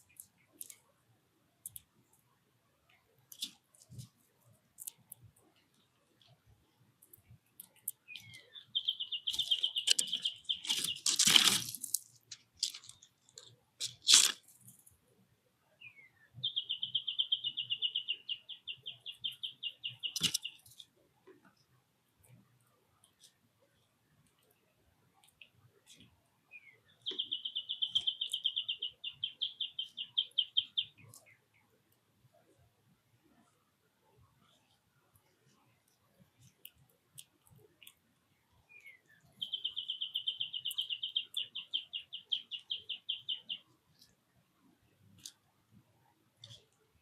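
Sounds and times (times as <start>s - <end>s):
songbird singing fast trill: 8.0s - 11.1s, 15.8s - 20.6s, 26.5s - 31.4s, 38.7s - 43.7s
scratchy rustling at feeder: 9.4s - 14.5s.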